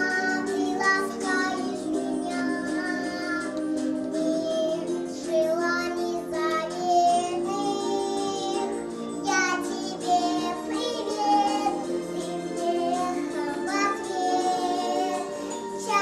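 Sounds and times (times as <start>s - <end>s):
girl singing: 0.0s - 16.0s
musical accompaniment: 0.0s - 16.0s.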